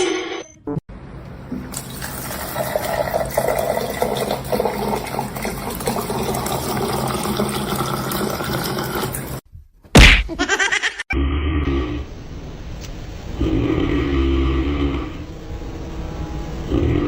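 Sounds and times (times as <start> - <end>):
running water rushing: 1.5 - 9.4.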